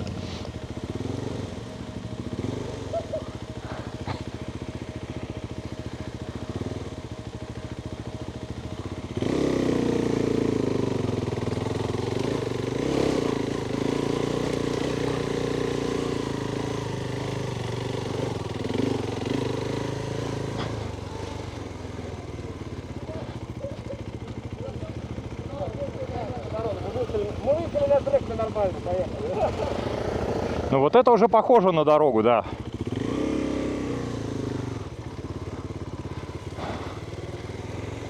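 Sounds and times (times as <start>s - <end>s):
motorcycle engine revving: 0.0s - 38.0s
light clicks from motorcycle: 14.4s - 15.2s.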